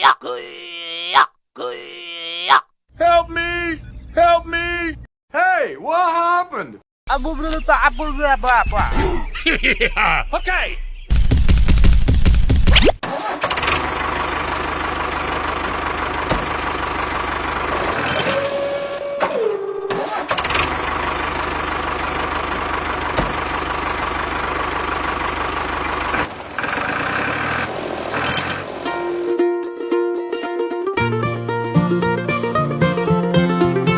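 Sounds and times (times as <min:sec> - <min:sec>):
tractor engine running: 0:13.4 - 0:29.2.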